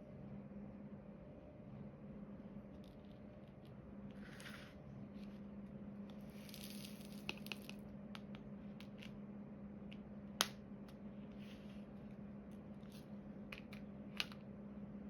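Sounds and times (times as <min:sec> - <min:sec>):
steady low hum: 0:00.0 - 0:15.0
resin beads rattling in a tray: 0:06.3 - 0:07.8.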